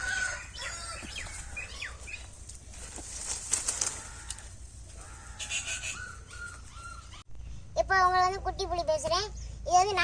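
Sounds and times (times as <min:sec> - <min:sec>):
birds calling: 0:00.0 - 0:07.3.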